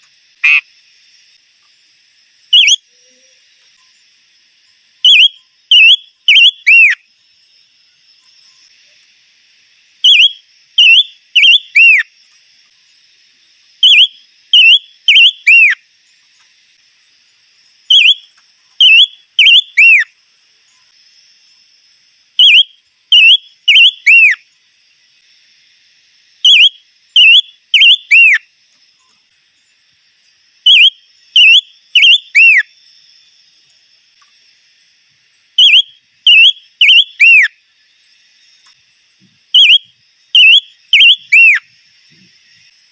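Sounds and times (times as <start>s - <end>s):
songbird whistled song: 2.4s - 4.1s, 4.9s - 7.1s, 10.0s - 12.9s, 13.8s - 16.5s, 17.3s - 21.0s, 22.3s - 24.5s, 26.4s - 29.8s, 30.6s - 32.8s, 35.5s - 37.6s, 38.5s - 42.7s.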